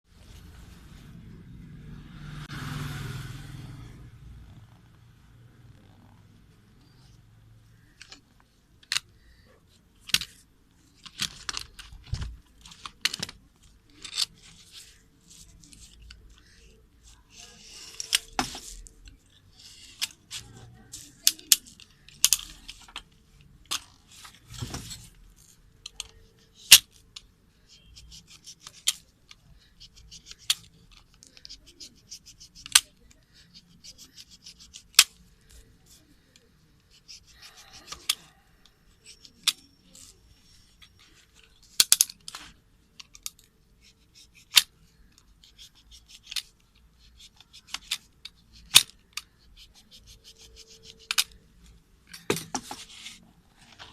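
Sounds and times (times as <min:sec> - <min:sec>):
rustling and rubbing: 0:09.6 - 0:26.7, 0:52.5 - 0:53.9.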